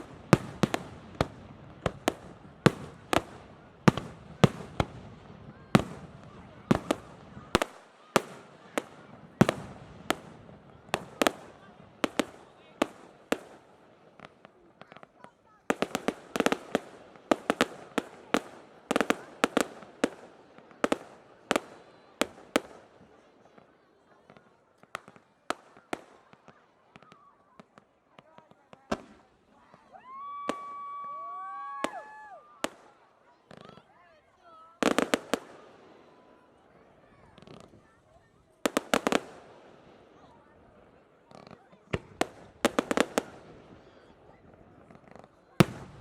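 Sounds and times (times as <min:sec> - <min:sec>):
fireworks bangs: 0:00.0 - 0:23.7, 0:34.8 - 0:36.3, 0:38.6 - 0:46.0.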